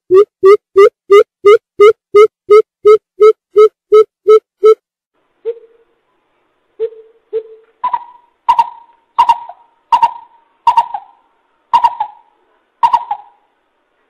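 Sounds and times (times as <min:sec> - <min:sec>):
bird hooting: 0:05.4 - 0:05.9, 0:06.8 - 0:11.2, 0:11.8 - 0:13.4.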